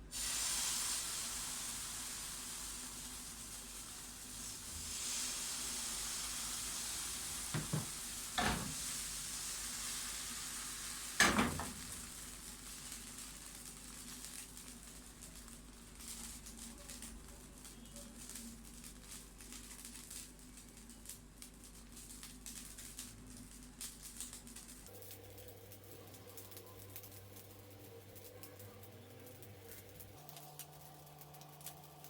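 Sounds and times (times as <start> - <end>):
vegetables sizzling in oil: 0.0 - 32.0
knocks on pan: 7.5 - 8.8, 11.2 - 11.9.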